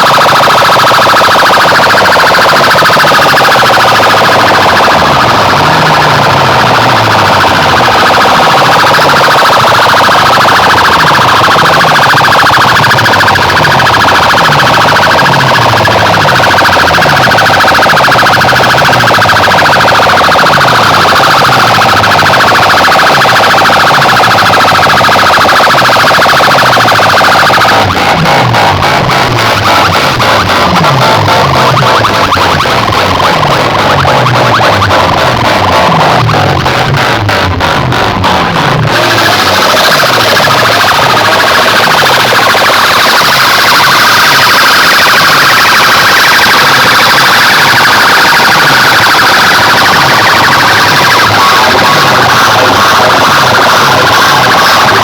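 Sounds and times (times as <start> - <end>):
bass line of falling tones: 0.0 - 55.0
fast driving beat: 0.0 - 55.0
warbling siren effect: 0.0 - 55.0.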